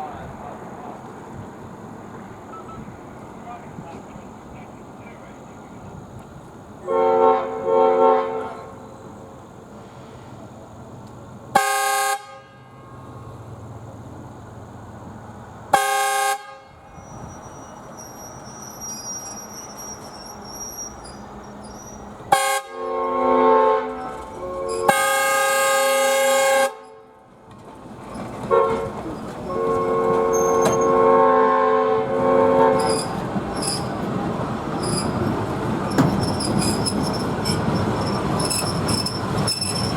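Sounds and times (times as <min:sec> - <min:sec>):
rail and wheel noise: 0:00.0 - 0:39.9
locomotive air horn: 0:06.8 - 0:08.7, 0:11.5 - 0:13.2, 0:15.7 - 0:17.3, 0:22.2 - 0:27.3, 0:28.5 - 0:33.8.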